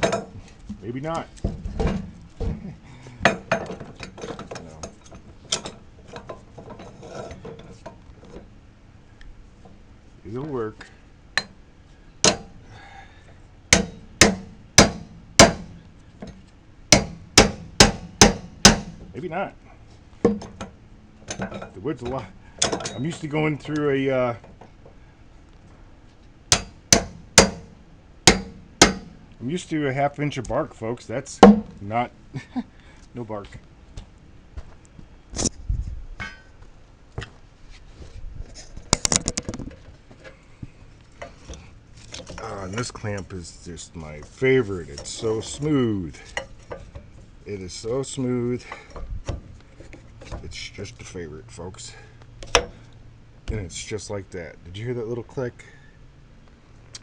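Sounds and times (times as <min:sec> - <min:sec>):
log clamp metal clicks and knocks: 0:03.2 - 0:08.5, 0:20.2 - 0:25.0, 0:38.8 - 0:40.4, 0:52.4 - 0:52.8.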